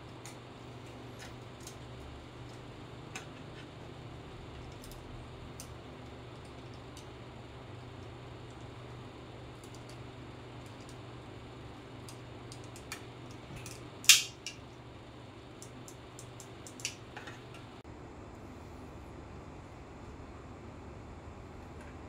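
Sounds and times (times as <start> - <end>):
steady low hum: 0.0 - 22.0
tools and small parts clicking: 4.6 - 5.8, 12.0 - 14.7.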